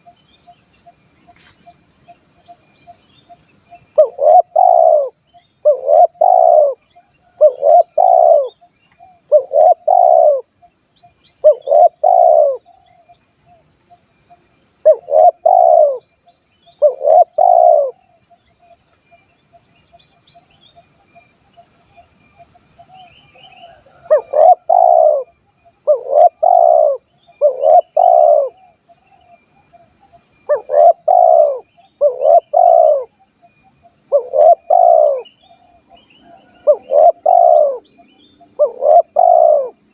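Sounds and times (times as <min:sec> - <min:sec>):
dove cooing: 0:03.9 - 0:10.5, 0:11.4 - 0:12.9, 0:14.8 - 0:16.0, 0:16.8 - 0:18.0, 0:22.9 - 0:28.8, 0:30.5 - 0:33.2, 0:34.0 - 0:39.9.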